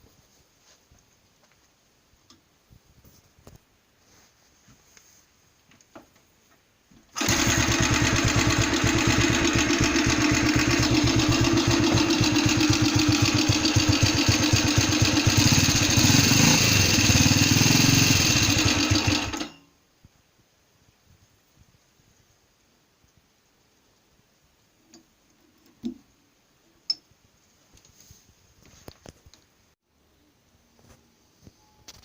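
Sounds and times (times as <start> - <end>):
motorcycle engine running: 7.2 - 19.5.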